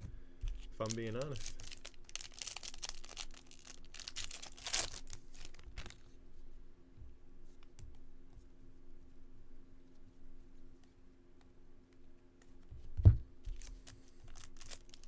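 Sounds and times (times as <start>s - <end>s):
wrapper tearing and crinkling: 0.5s - 6.0s, 13.5s - 15.0s.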